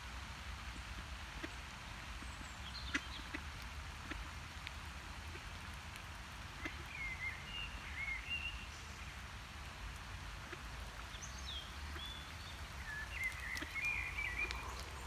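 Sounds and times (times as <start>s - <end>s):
small birds warbling: 10.6s - 15.0s.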